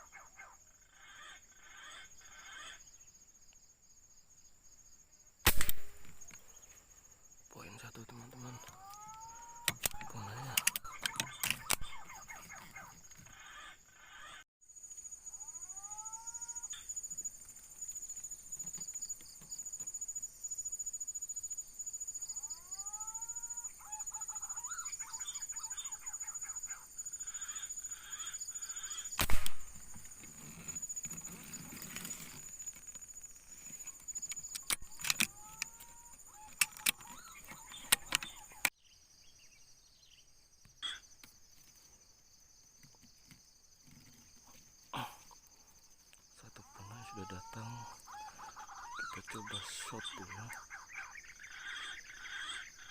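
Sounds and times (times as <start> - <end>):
loud sharp crack: 5.4 - 6.2, 29.2 - 29.9.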